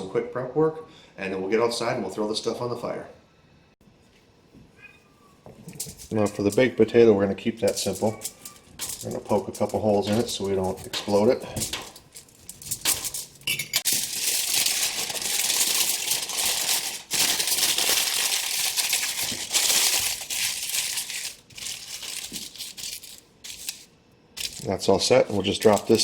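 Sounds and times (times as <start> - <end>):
aluminium foil crinkling: 5.6 - 24.8, 25.4 - 26.0.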